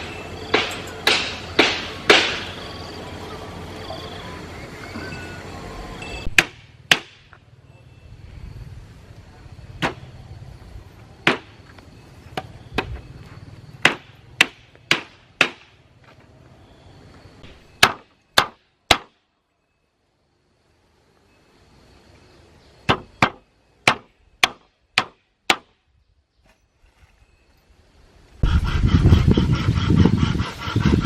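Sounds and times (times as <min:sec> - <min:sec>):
hammer blows: 0:00.0 - 0:02.9.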